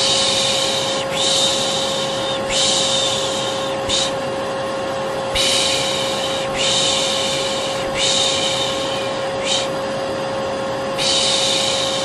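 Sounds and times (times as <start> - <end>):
vacuum cleaner motor humming: 0.0 - 12.0
person shushing: 5.4 - 9.8, 11.0 - 12.0.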